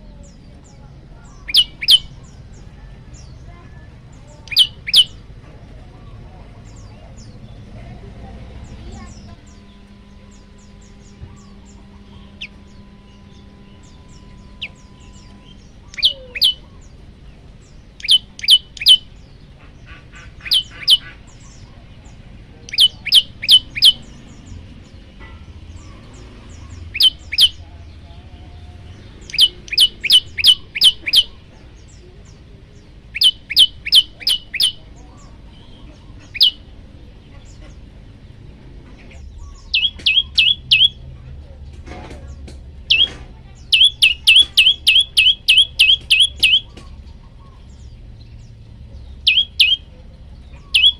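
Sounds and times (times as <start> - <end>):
bird calling sharp high notes: 1.3 - 2.4, 4.4 - 5.2, 9.1 - 16.7, 18.0 - 19.2, 19.9 - 21.3, 22.7 - 24.1, 25.8 - 27.6, 28.9 - 31.4, 33.1 - 34.9, 39.4 - 41.0, 42.9 - 47.0, 49.3 - 49.9, 50.6 - 50.9.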